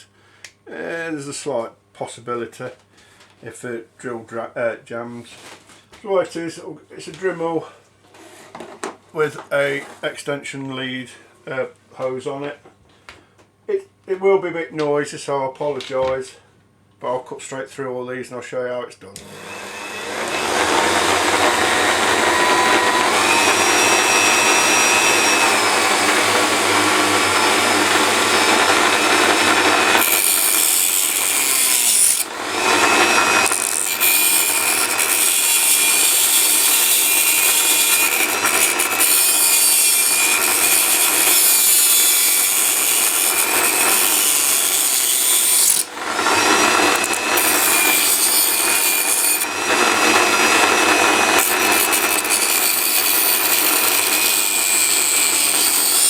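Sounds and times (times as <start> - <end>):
rotary tool cutting metal rails: 19.2 - 56.0.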